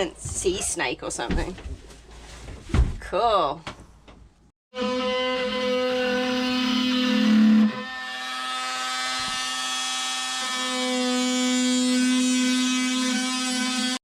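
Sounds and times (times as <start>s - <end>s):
small electric motor whine: 4.8s - 14.0s.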